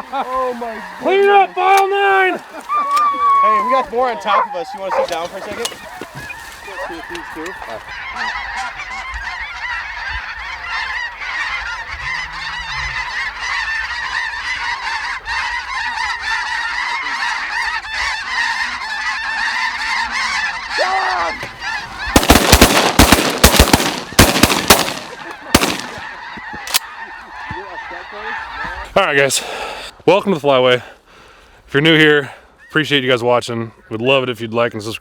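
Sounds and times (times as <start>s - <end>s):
flock of geese honking: 0.0s - 29.7s
shotgun blasts: 22.2s - 26.0s.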